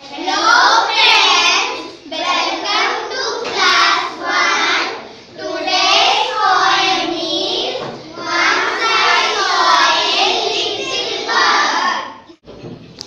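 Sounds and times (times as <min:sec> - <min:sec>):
children chanting together: 0:00.0 - 0:12.2.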